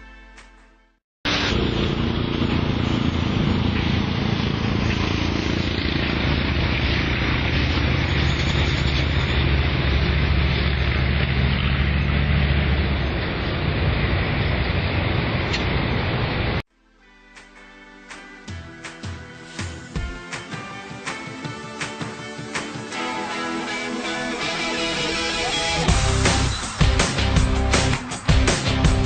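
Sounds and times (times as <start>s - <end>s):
vehicle engine running: 1.3s - 16.6s, 25.8s - 29.0s.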